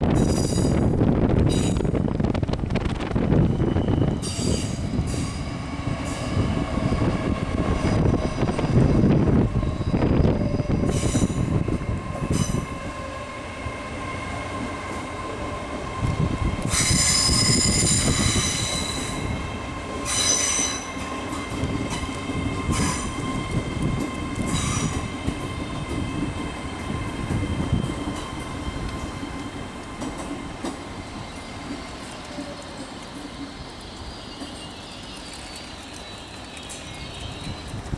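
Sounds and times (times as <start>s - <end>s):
train rumbling: 0.0s - 37.9s
high-pitched wheel squealing: 16.7s - 19.4s.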